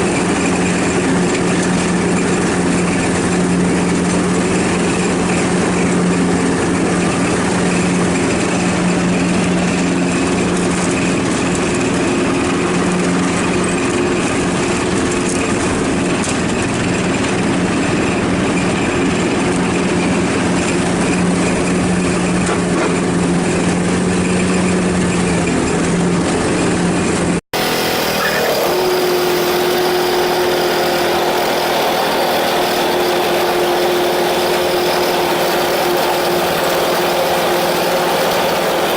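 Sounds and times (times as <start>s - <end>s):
ride-on lawnmower engine running: 0.0s - 38.9s.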